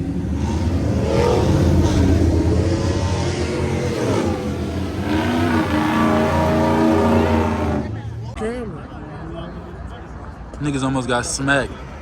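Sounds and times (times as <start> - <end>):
car engine revving: 0.0 - 8.3.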